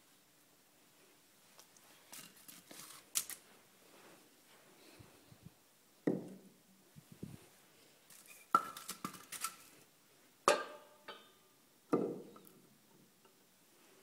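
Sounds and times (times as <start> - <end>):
firewood logs knocking together: 11.9 - 12.3.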